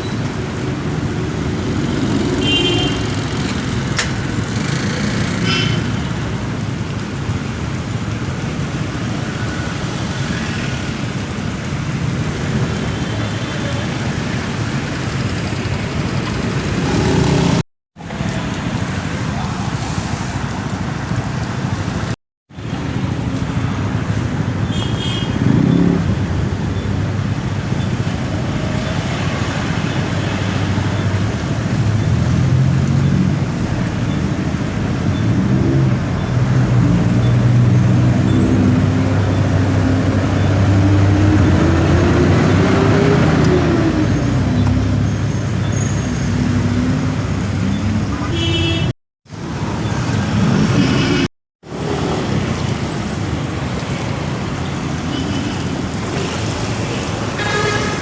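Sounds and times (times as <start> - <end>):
road and traffic noise: 0.0 - 58.0
motorcycle engine revving: 1.1 - 6.1, 15.2 - 17.6, 25.2 - 26.7, 35.2 - 45.1.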